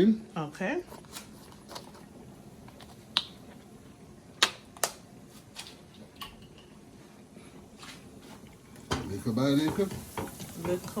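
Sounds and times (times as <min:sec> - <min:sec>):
utensil knocking against pot: 0:08.9 - 0:11.0.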